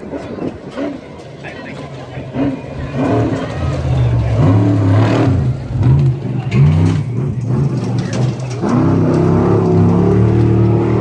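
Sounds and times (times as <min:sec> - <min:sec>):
truck engine revving hard: 0:02.2 - 0:11.0.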